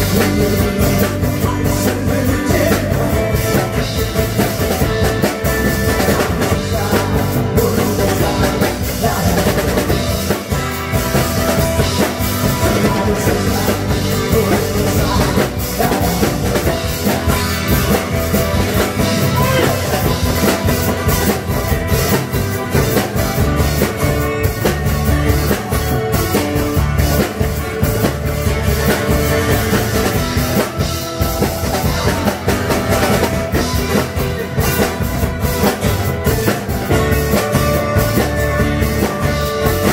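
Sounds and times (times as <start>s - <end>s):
drum kit beating: 0.0s - 39.9s
live rock band playing: 0.0s - 39.9s.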